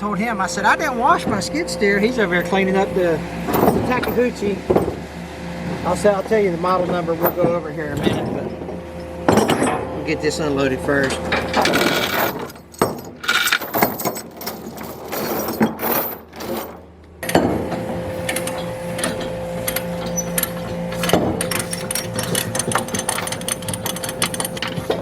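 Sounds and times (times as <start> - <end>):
equipment clanking and clicking: 0.0 - 5.1, 5.7 - 25.0
skid steer engine running: 0.0 - 13.5, 16.9 - 25.0
clicking and rattling: 11.0 - 25.0.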